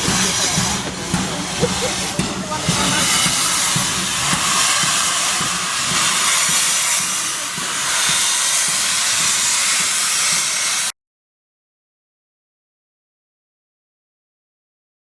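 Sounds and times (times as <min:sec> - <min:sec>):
steam hissing loudly: 0:00.0 - 0:10.9.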